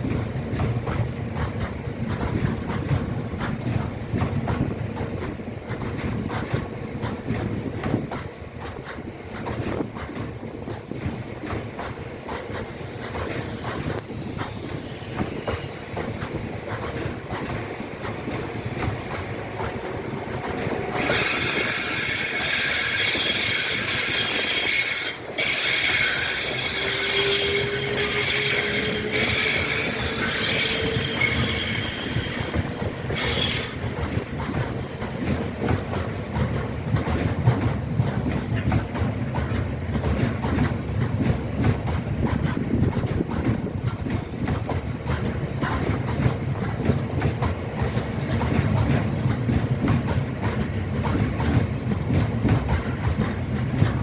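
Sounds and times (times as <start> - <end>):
wheel flanges squealing on rails: 11.3 - 35.7.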